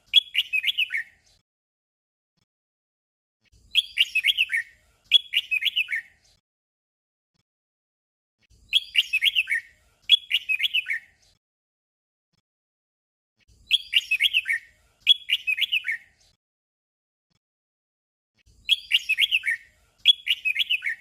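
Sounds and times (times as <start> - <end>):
bird singing warbled phrase: 0.0 - 1.2, 3.6 - 6.2, 8.6 - 11.2, 13.6 - 16.2, 18.5 - 21.0.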